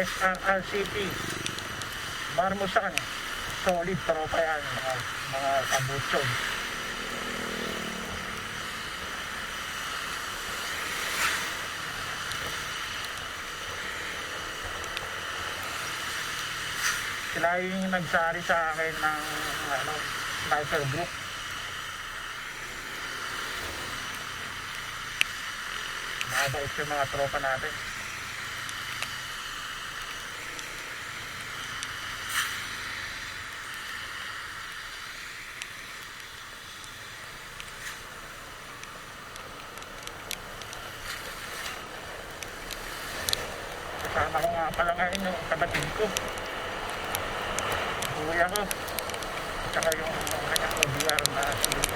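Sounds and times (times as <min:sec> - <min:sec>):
motorcycle road noise: 0:00.0 - 0:51.9
rushing wind: 0:37.1 - 0:51.9.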